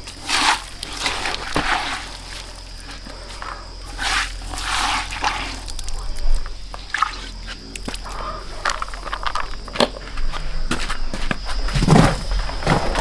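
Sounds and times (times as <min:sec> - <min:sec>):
water splashing and trickling: 0:00.1 - 0:03.1, 0:03.8 - 0:09.6.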